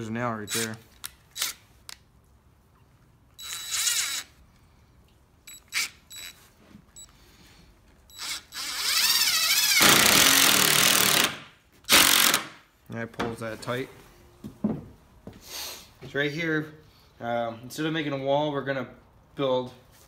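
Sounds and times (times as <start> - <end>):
impact driver driving screw: 3.4 - 4.3, 8.2 - 12.6.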